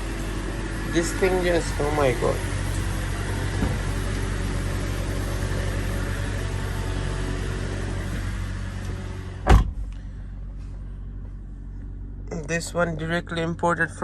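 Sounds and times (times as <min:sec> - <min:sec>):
car cabin low hum: 0:00.0 - 0:14.0
loud thump: 0:03.5 - 0:04.0, 0:09.4 - 0:09.9.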